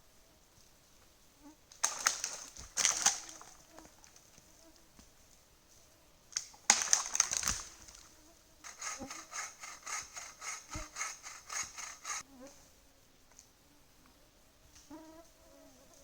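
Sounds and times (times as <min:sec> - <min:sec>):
loud crackling rustle: 0:06.4 - 0:12.2
rasping strokes: 0:08.6 - 0:12.2.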